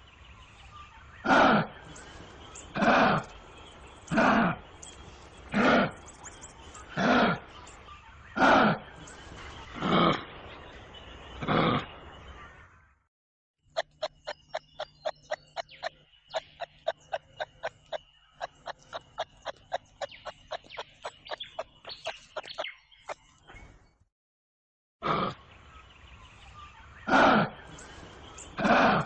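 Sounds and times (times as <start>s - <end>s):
kangaroo harsh calls: 1.2s - 1.7s, 8.3s - 8.8s, 27.0s - 27.8s, 28.6s - 29.0s
kangaroo clicking clucks: 13.7s - 23.2s.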